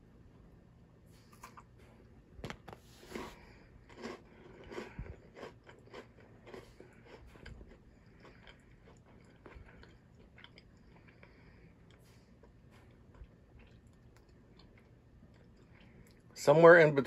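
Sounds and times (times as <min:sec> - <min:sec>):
person crunching a wafer bar: 0:02.4 - 0:11.3.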